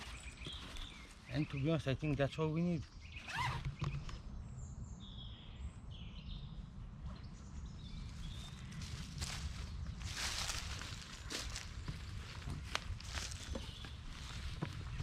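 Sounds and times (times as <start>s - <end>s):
birds chirping: 0.0s - 15.0s
low outdoor rumble: 4.3s - 15.0s.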